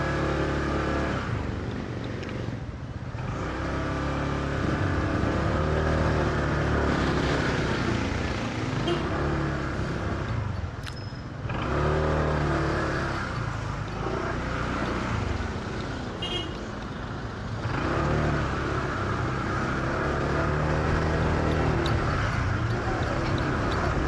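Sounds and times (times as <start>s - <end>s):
road noise: 0.0s - 24.0s
motorcycle engine: 11.4s - 24.0s.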